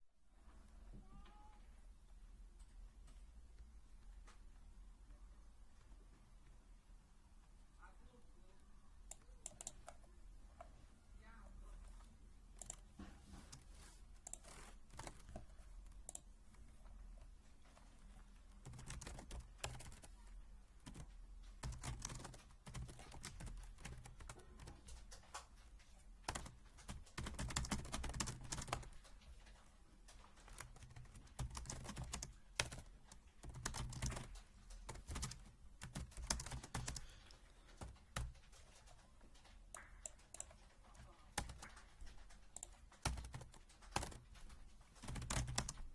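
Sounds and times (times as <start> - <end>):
keyboard typing: 9.0 - 10.7, 12.5 - 45.9.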